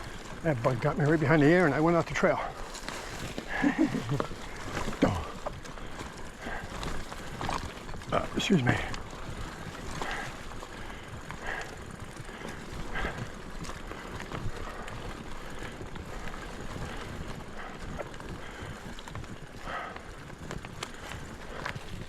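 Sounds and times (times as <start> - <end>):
bike clattering over bumps: 0.0 - 22.0
bike tyres rumbling on dirt: 0.0 - 22.0.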